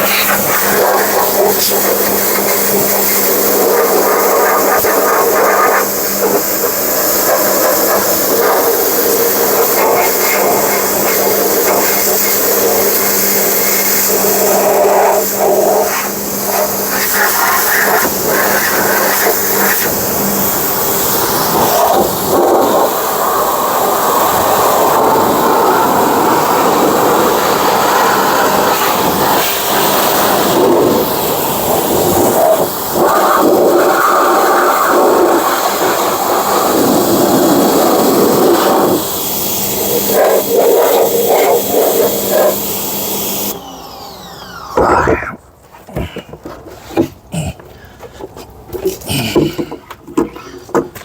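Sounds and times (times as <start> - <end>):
pressure washer spraying water: 0.0 - 45.3
steady hum: 43.5 - 46.7.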